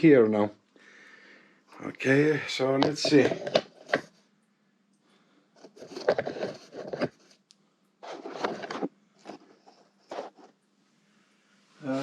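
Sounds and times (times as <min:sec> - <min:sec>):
faint steady hum: 0:00.0 - 0:12.0
metal parts scraping and rustling: 0:02.6 - 0:04.0, 0:05.6 - 0:07.2.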